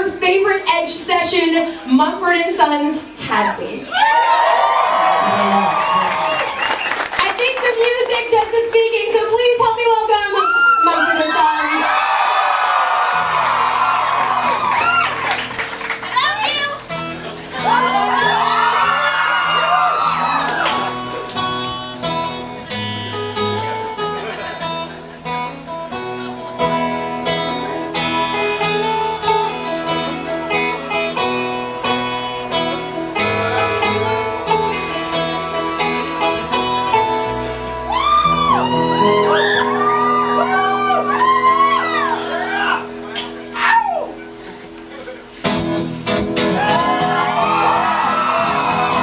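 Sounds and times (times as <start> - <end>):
acoustic band playing: 0.0 - 49.0
audience whooping: 3.9 - 7.3, 10.3 - 16.8, 17.6 - 21.5, 33.2 - 37.1, 37.7 - 44.4, 46.4 - 49.0
audience cheering: 3.9 - 7.6, 10.3 - 16.8, 17.5 - 21.3, 37.8 - 44.3, 46.4 - 49.0.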